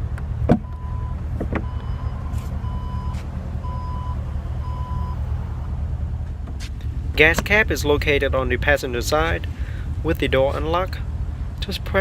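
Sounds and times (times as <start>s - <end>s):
low rumble: 0.0s - 12.0s
car electronic warning beep: 0.6s - 5.2s.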